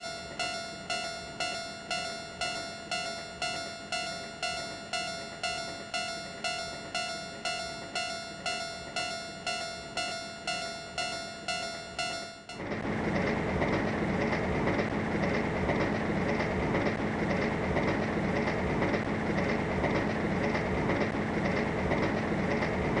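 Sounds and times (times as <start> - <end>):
level crossing bell ringing: 0.0 - 12.6.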